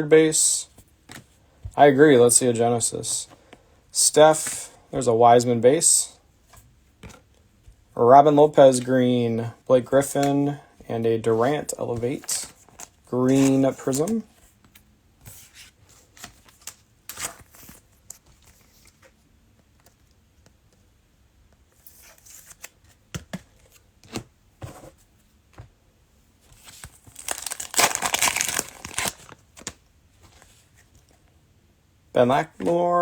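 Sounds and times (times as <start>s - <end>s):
cellophane wrapper tearing and crinkling: 26.9s - 29.4s.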